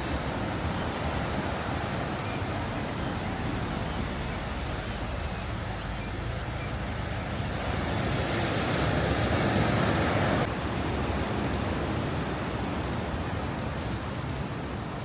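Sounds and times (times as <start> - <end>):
wind on microphone: 0.0 - 10.5
sea waves washing on shore: 0.0 - 15.0.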